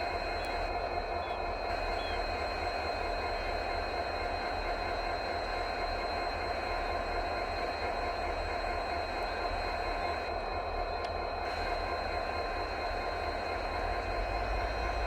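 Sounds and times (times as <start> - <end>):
diesel train rumbling: 11.0 - 15.0.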